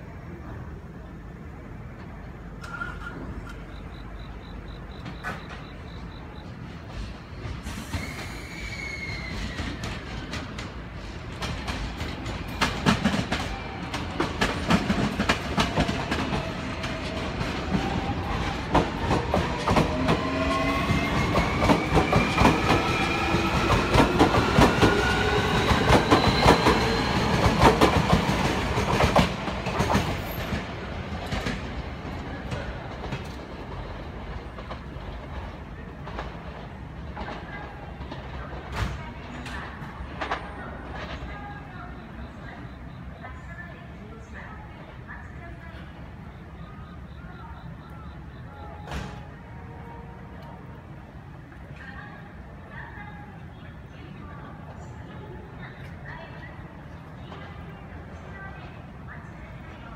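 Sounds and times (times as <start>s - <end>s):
train wheels clacking over joints: 4.9s - 41.3s.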